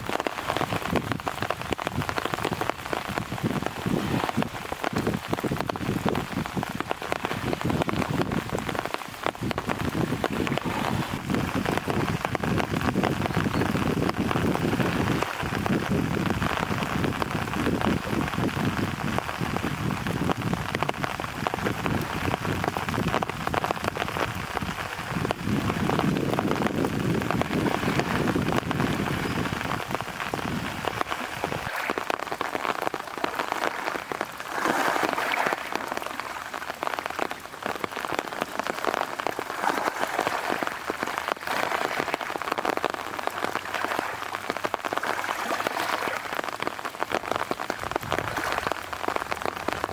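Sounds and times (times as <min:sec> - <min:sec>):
low rumble of wind: 0:00.0 - 0:34.6, 0:35.6 - 0:49.9
wind-driven rain hissing: 0:00.0 - 0:49.9.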